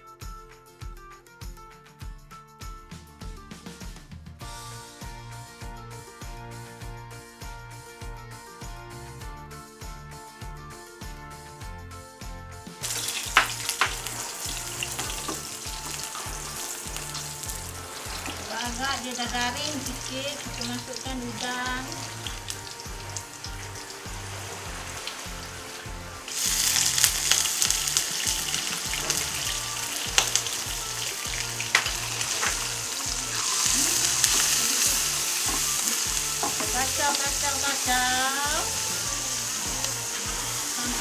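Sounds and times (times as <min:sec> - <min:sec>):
loud hiss with crackles: 0:12.8 - 0:21.0, 0:21.9 - 0:41.0
food sizzling in hot oil: 0:12.8 - 0:41.0.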